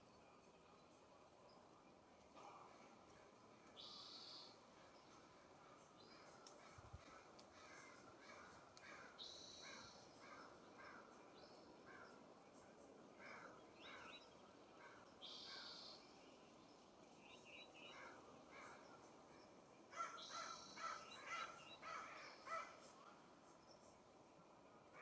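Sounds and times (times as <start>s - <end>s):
faint short bird calls: 6.2s - 11.1s.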